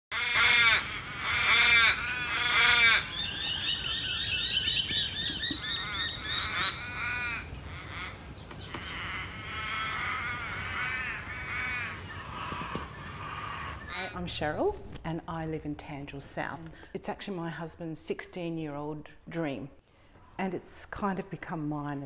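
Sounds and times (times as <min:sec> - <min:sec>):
birds calling harshly: 0:00.1 - 0:14.2.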